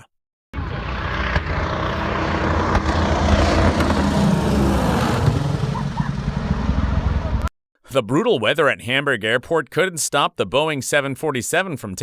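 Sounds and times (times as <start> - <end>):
propeller airliner engines droning: 0.6 - 7.5.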